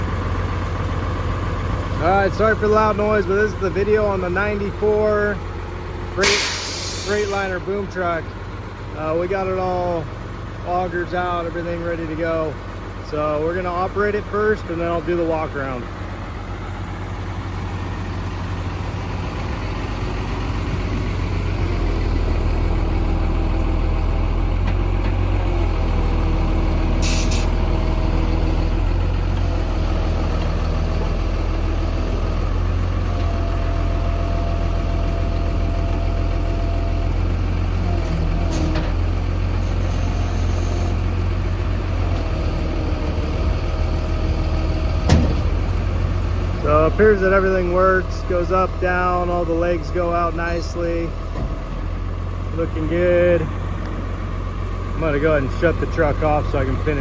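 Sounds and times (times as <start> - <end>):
diesel truck engine running: 0.0 - 57.0
air hiss: 6.2 - 7.4, 27.0 - 27.6
hydraulic whine: 6.2 - 7.8, 24.5 - 29.7, 37.8 - 48.0.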